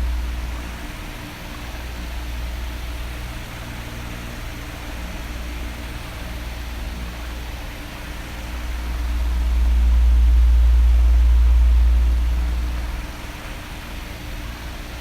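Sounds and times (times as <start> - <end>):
low motor hum: 0.0 - 4.0, 8.1 - 14.7
electric fan blowing air: 0.0 - 15.0.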